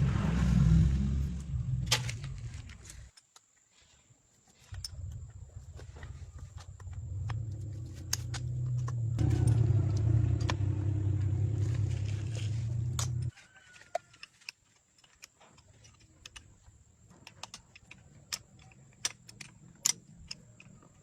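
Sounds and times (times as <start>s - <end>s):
car engine rumbling: 0.0s - 3.0s, 4.7s - 13.3s.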